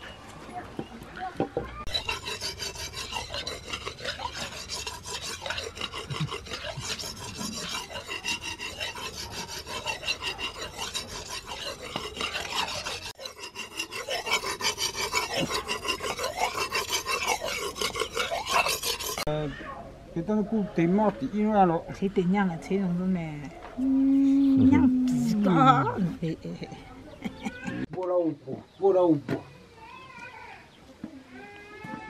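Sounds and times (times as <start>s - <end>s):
steel being rasped by hand: 1.9s - 19.3s.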